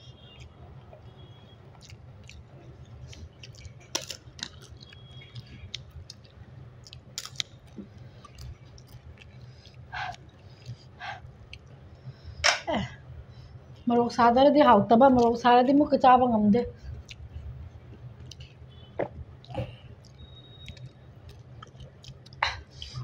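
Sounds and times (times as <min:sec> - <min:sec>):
steady low hum: 0:00.0 - 0:23.0
chewing with crunches: 0:01.7 - 0:12.0, 0:17.0 - 0:23.0.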